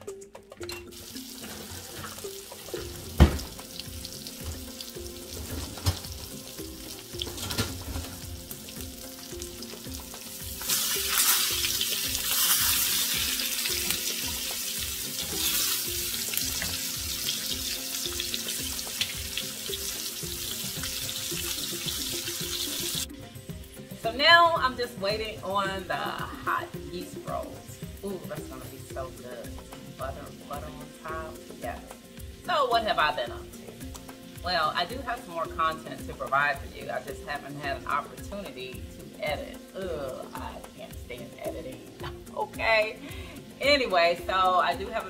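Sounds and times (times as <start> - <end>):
background music: 0.0 - 45.0
fish sizzling in a frying pan: 0.9 - 45.0
spatula turning food: 3.8 - 23.0.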